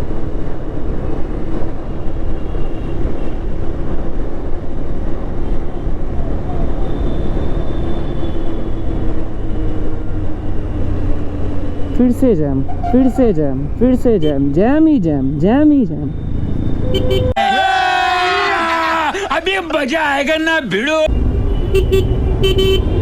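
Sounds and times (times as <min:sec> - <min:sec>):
road and traffic noise: 0:00.0 - 0:23.0
motorcycle engine hum: 0:03.5 - 0:17.4.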